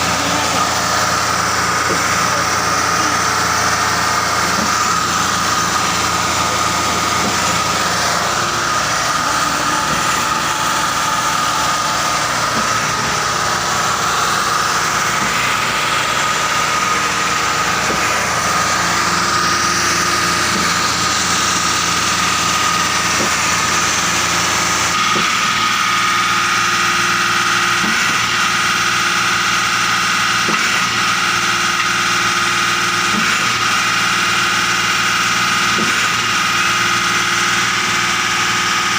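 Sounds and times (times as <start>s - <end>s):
high whine: 0.0s - 26.6s
truck engine running: 0.0s - 38.9s.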